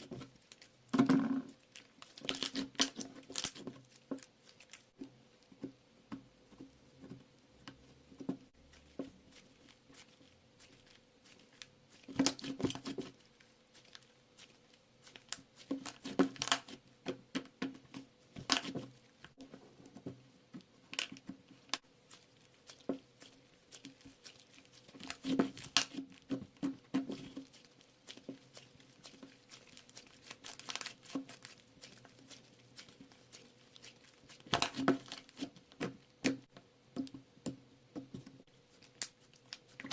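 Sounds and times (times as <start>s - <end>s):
crinkly material rustling: 8.3s - 16.8s, 18.2s - 36.1s.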